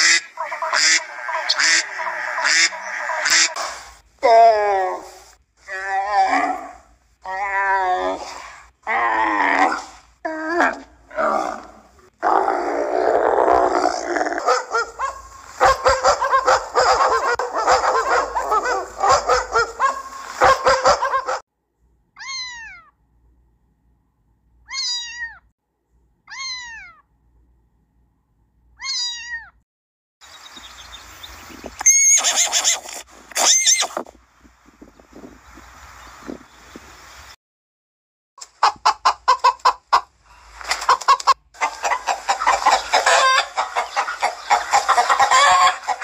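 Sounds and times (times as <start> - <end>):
kitten meowing: 22.2 - 22.9, 24.7 - 25.4, 26.3 - 27.0, 28.8 - 29.5.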